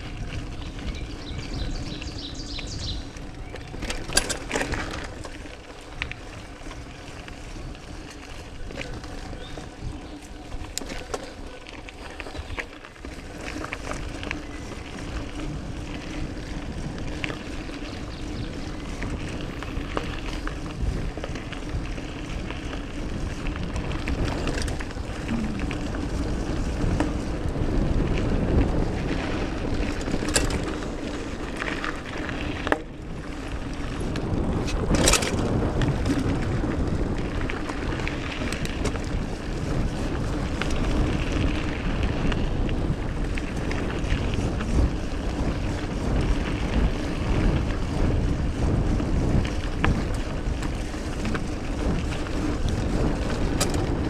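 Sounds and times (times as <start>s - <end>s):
bike rattles and clicks: 0.0s - 54.0s
bike tyres rumbling on dirt: 0.0s - 54.0s.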